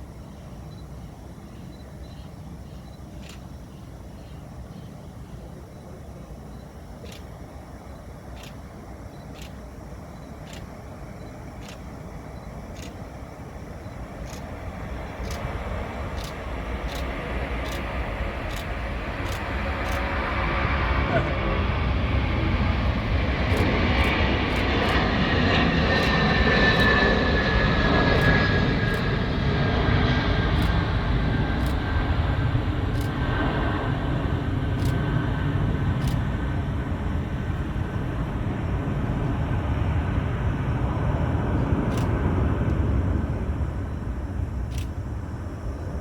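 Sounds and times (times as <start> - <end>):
jet engine whine: 0.0 - 46.0
jet engines rumbling: 0.0 - 46.0.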